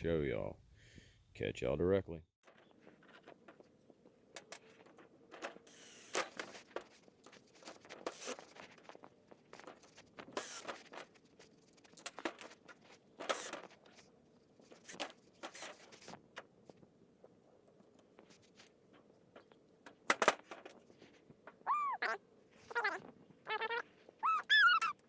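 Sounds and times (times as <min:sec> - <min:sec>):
objects clicking and scraping: 0:02.4 - 0:21.6.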